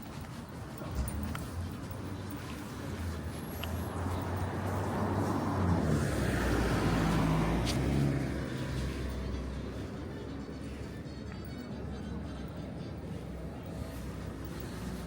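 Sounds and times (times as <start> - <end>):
car driving past: 4.4 - 9.5.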